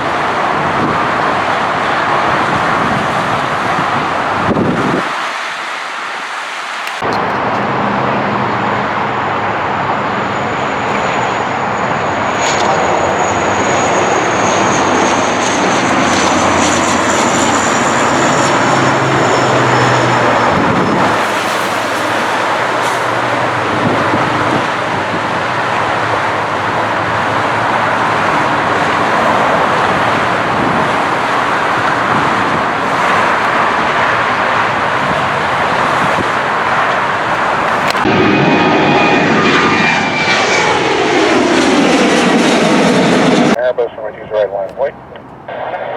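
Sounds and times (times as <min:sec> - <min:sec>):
high jet engine whine: 0:00.0 - 0:45.9
jet engines roaring: 0:00.0 - 0:45.9.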